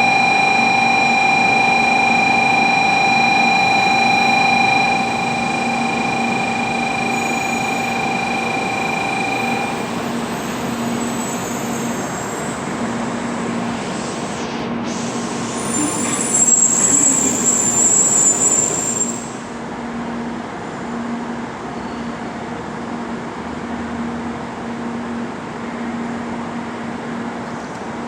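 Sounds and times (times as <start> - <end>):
high squeal: 0.0 - 19.6
train rumbling: 4.8 - 19.4.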